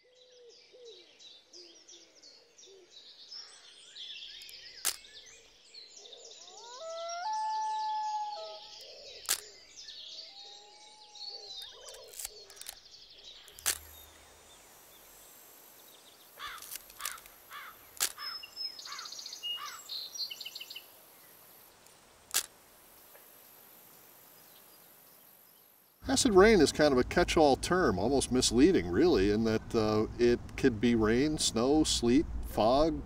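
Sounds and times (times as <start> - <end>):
birds chirping and calling: 0.0 - 14.2, 16.4 - 20.9
faint outdoor hiss: 0.0 - 33.0
sharp clicks: 4.4 - 5.1, 9.2 - 9.5, 11.6 - 12.8, 13.4 - 14.1, 16.6 - 18.3, 22.3 - 22.6.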